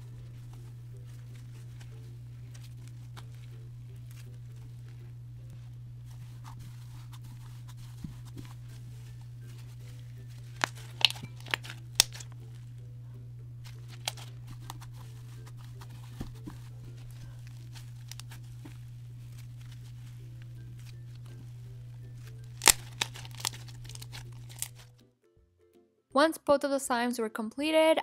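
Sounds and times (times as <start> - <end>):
crispy slime crackling: 0.0 - 12.8, 13.5 - 25.0
low hum: 0.0 - 25.0.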